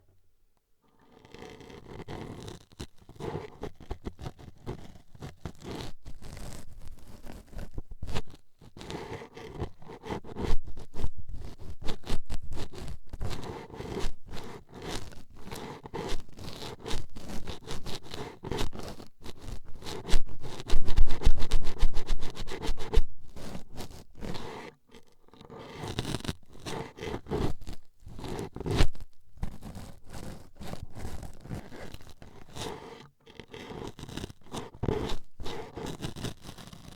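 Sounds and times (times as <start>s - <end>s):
toothpicks scratching microphone: 10.4s - 36.9s.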